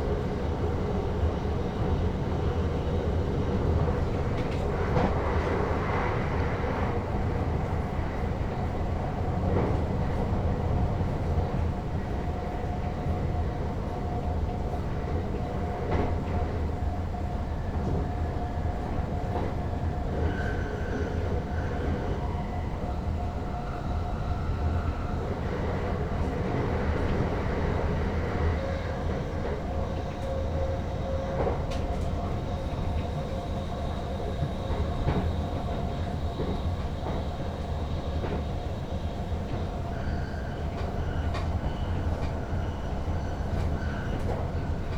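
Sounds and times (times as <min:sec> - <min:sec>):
train rumbling on track: 0:00.0 - 0:44.9.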